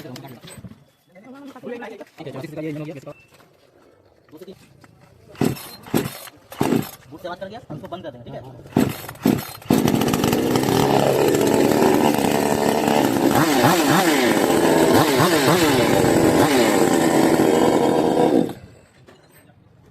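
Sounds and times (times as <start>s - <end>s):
chainsaw engine revving: 5.4s - 7.1s, 8.7s - 18.9s.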